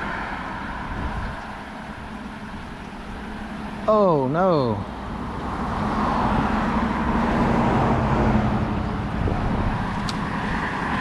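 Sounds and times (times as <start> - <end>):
vehicle passing on highway: 0.0 - 11.0.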